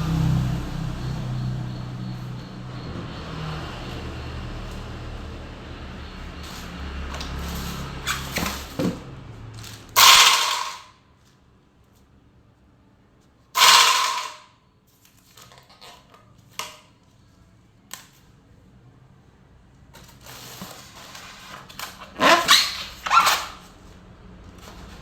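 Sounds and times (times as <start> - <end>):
loud rattling: 10.0 - 10.9, 13.6 - 14.5.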